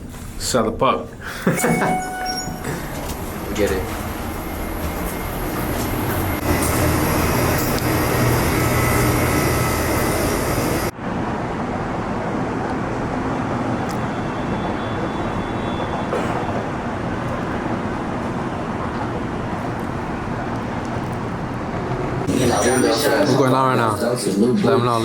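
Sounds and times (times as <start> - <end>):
loud vehicle traffic noise: 2.6 - 22.3
dull traffic rumble: 2.8 - 22.3.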